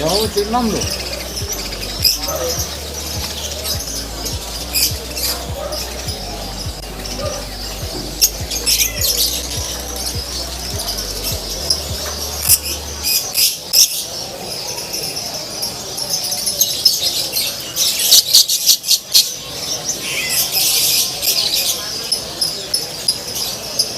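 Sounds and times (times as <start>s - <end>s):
songbirds chirping and singing: 0.0s - 23.9s.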